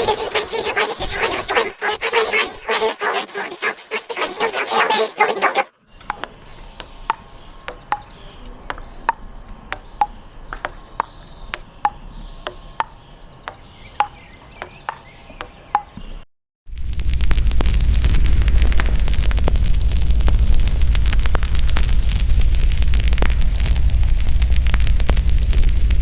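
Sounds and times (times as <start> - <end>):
sharp clicks with ringing ping: 6.0 - 15.9.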